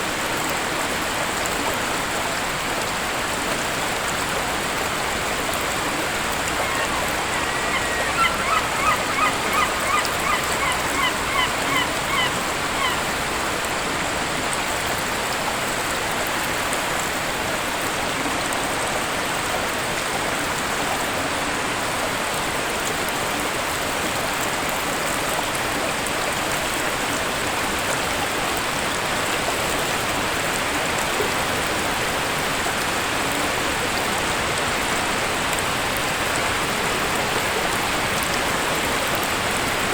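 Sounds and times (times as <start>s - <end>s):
waterfall rushing: 0.0s - 39.9s
bird short calls: 6.3s - 13.1s.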